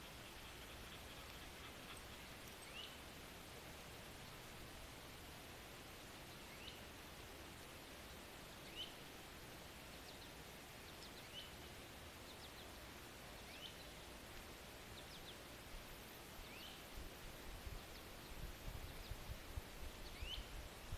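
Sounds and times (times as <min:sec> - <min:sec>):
faint bird calls: 0:00.0 - 0:03.2
steady outdoor hiss: 0:00.0 - 0:20.9.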